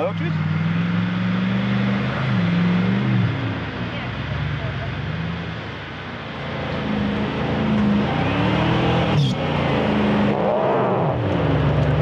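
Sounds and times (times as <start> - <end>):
engine revving under load: 0.0 - 3.8, 6.4 - 12.0.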